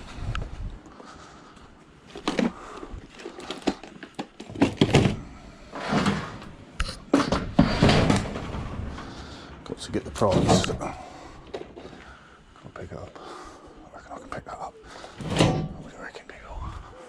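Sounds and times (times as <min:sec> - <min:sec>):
metal knocks thuds and scrapes: 0:05.8 - 0:11.9.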